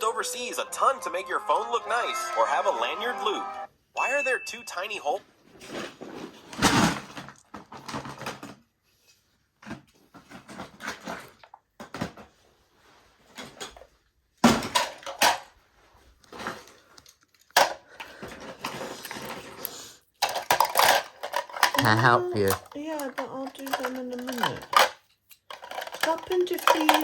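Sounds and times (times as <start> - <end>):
toy trains clattering: 14.7 - 15.5, 16.4 - 27.0.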